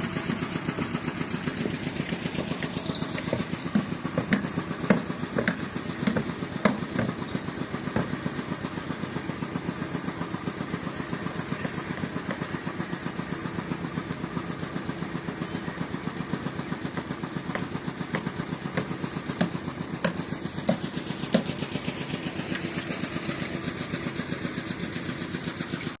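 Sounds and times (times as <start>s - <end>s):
engine running with fast pulse: 0.0s - 26.0s
sharp knocks: 3.2s - 7.3s, 7.9s - 8.3s, 17.5s - 21.5s.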